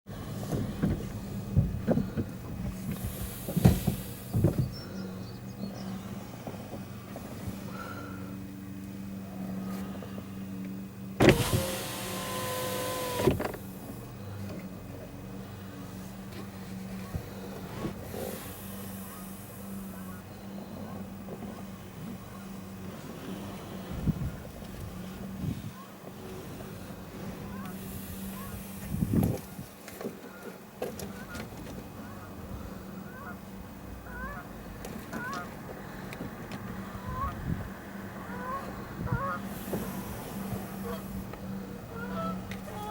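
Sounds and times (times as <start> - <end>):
steady low hum: 0.1 - 42.9
electric window motor whine: 11.0 - 13.8
window motor clunk: 11.2 - 13.7
geese honking: 33.0 - 33.4, 34.0 - 34.6, 38.2 - 41.2, 41.9 - 42.9.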